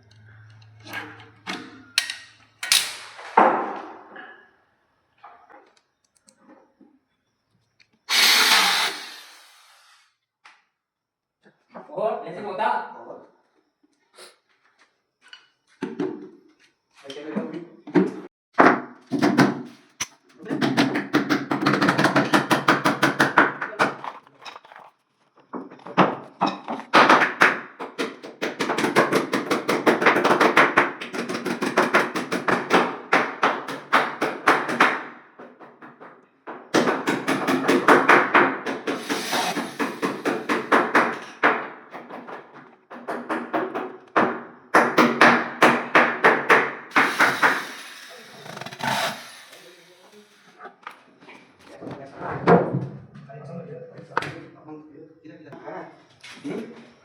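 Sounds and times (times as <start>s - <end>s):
rapid knocking on wood: 20.4s - 24.9s, 25.5s - 47.7s.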